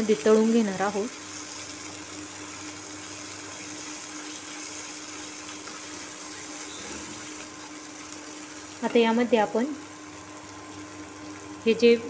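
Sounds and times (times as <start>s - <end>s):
food sizzling in oil: 0.0s - 12.0s
spatula stirring in pan: 1.2s - 9.0s.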